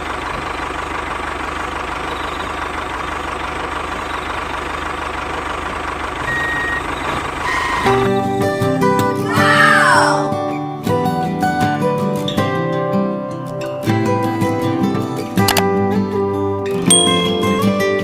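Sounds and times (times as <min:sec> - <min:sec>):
music: 0:07.8 - 0:18.0.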